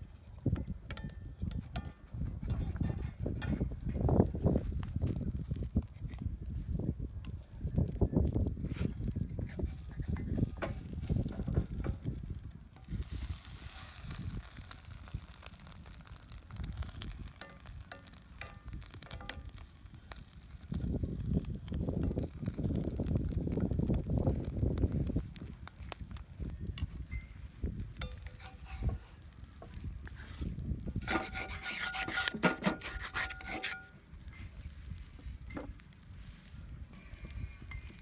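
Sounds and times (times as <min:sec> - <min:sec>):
wind buffeting microphone: 0:00.0 - 0:38.0
food sizzling in a pan: 0:12.8 - 0:22.4, 0:27.0 - 0:32.2.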